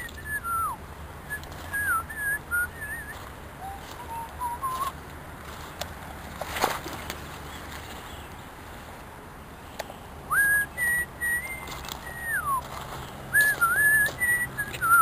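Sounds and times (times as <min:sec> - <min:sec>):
person whistling a tune: 0:00.0 - 0:04.9, 0:10.3 - 0:12.6, 0:13.3 - 0:15.0.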